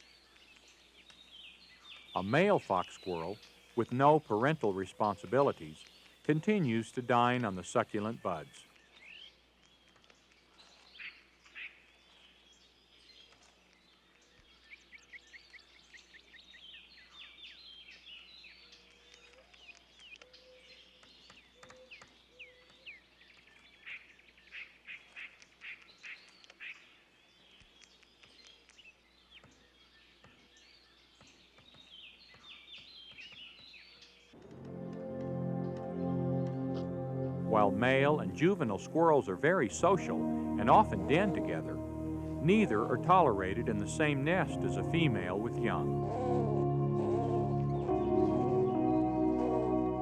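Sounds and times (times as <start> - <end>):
small birds chirping and trilling: 0.0 - 34.4.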